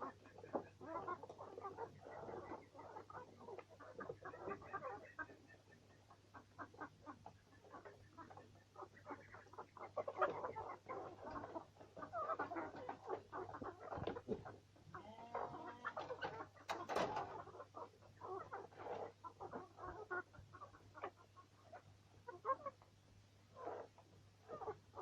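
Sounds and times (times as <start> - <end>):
beaks pecking at feed: 0.0 - 25.0
chickens clucking: 0.0 - 25.0.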